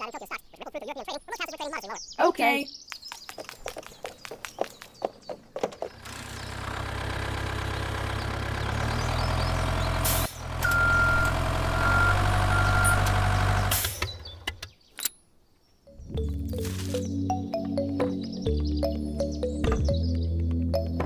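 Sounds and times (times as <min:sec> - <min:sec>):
truck engine running: 0:05.9 - 0:14.5.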